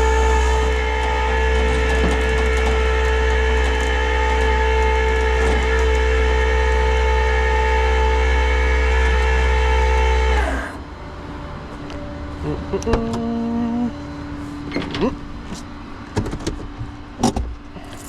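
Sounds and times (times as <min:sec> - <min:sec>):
hydraulic winch whining: 0:00.0 - 0:11.0
low engine hum: 0:00.0 - 0:18.0.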